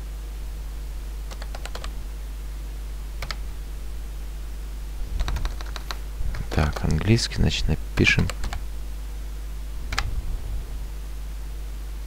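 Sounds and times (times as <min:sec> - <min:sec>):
steady low hum: 0:00.0 - 0:12.0
computer keyboard typing: 0:01.3 - 0:02.0, 0:03.2 - 0:03.4, 0:05.2 - 0:07.0, 0:08.0 - 0:08.6.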